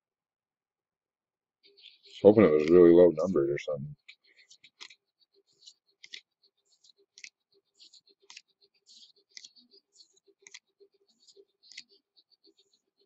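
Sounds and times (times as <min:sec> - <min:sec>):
cards flipped and rustling: 0:04.0 - 0:12.8.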